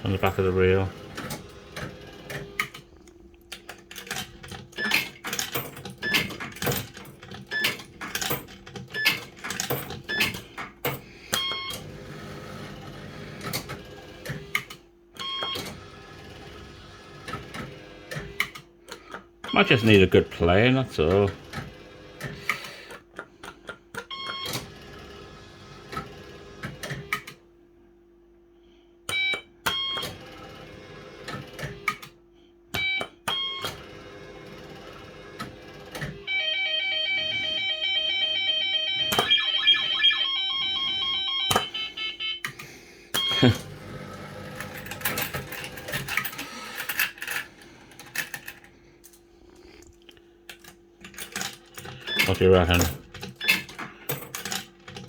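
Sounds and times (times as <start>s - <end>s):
bleeping tune: 36.3s - 42.5s, 43.2s - 43.6s
electronic bleeps: 36.3s - 42.5s.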